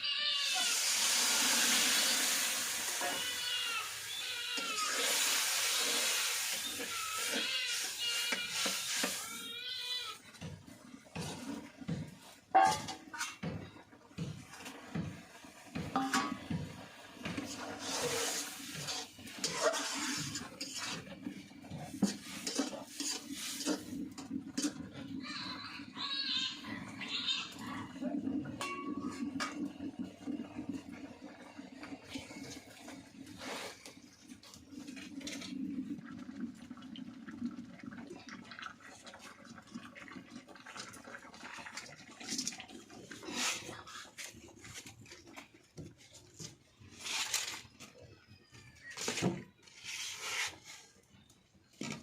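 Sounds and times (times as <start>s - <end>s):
utensil scraping in a pot: 0.5s - 13.4s, 17.2s - 30.5s, 32.1s - 36.0s, 42.2s - 45.4s, 46.0s - 47.8s, 48.8s - 51.1s.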